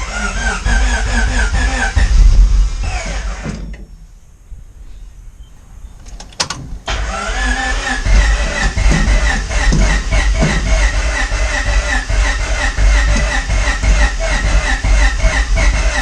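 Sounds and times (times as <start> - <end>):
starter motor cranking engine: 0.0 - 3.8, 6.0 - 16.0.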